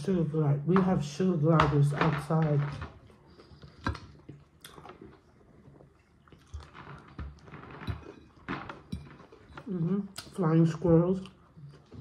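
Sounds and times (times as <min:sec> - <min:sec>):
faint close-up chewing: 0:02.6 - 0:12.0.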